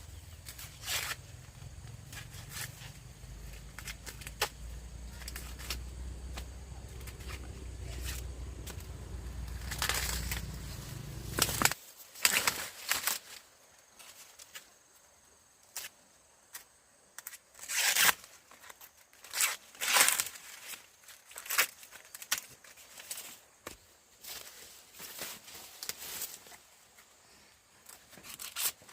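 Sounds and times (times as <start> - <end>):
steady low hum: 0.0 - 11.8
dry leaves rustling and tearing: 0.2 - 13.4, 17.7 - 23.4, 24.2 - 26.6, 27.9 - 28.9.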